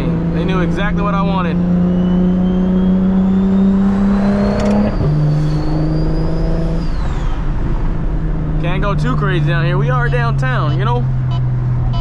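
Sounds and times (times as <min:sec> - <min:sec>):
car engine accelerating hard: 0:00.0 - 0:12.0
high turbo whistle: 0:01.8 - 0:07.7.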